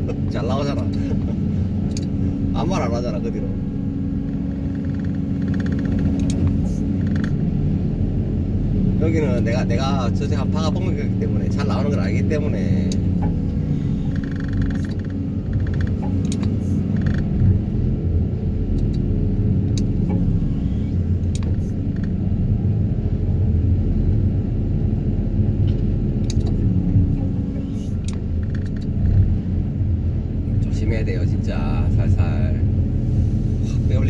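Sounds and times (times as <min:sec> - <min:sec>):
diesel engine rumble: 0:00.0 - 0:34.0.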